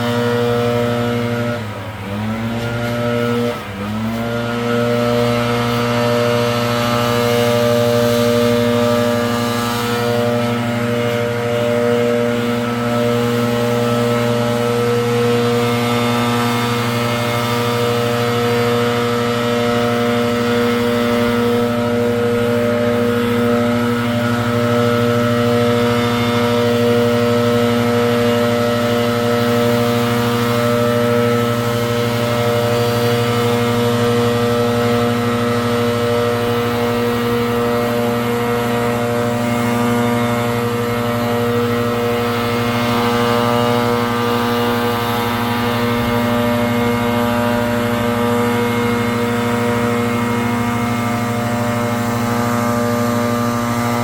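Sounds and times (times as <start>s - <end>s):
air rushing from nozzle: 0.0s - 54.0s
leaf blower engine running: 0.0s - 54.0s.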